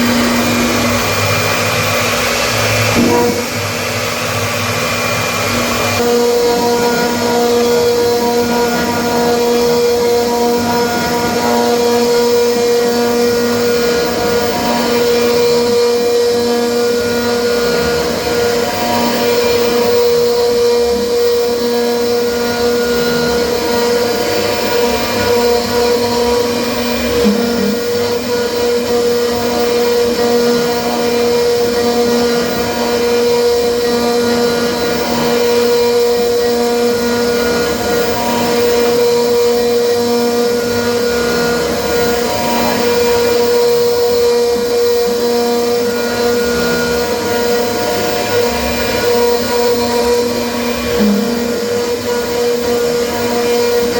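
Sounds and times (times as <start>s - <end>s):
end mill cutting metal: 0.0s - 33.6s, 45.6s - 53.9s
router spindle whine: 0.0s - 53.9s.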